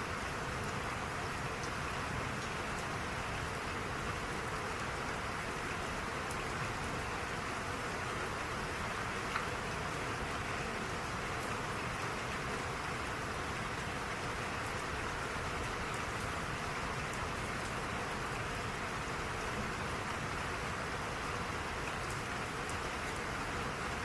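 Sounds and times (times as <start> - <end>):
steady rain hiss: 0.0 - 24.0
raindrop ticks: 9.2 - 9.7.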